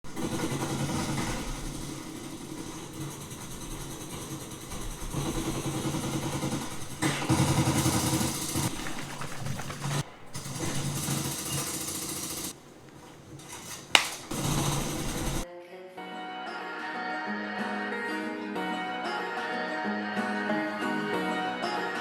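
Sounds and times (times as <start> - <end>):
vehicle engine running: 0.1 - 12.5, 14.3 - 15.4.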